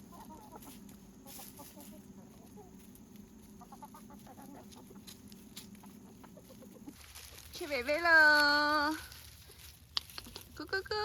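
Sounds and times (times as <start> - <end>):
chickens clucking softly: 0.0 - 7.4.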